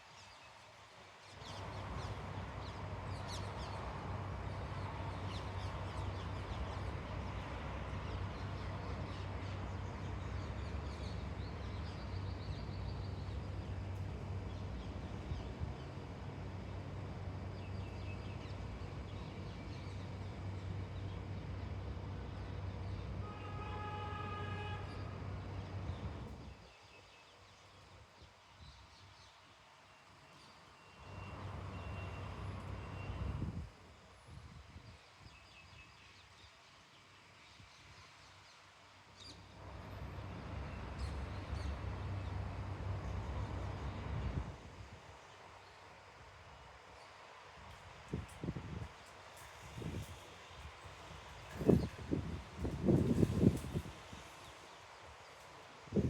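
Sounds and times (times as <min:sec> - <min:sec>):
horn-like tone: 0:23.2 - 0:25.1.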